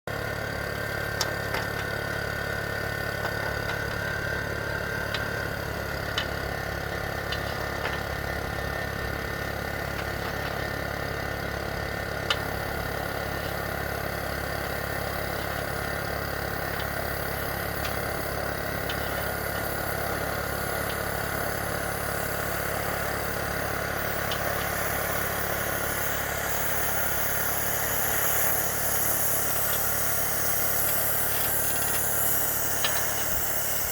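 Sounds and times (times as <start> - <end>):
motor-driven machine running: 0.1 - 33.9
sharp clicks and ticks: 5.0 - 8.7, 12.2 - 12.6, 16.6 - 21.7, 22.4 - 33.9.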